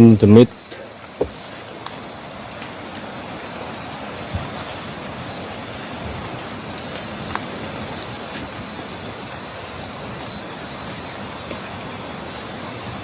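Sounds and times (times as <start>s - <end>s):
wind gusting through trees: 0.0s - 13.0s
faint knocks: 1.1s - 1.5s.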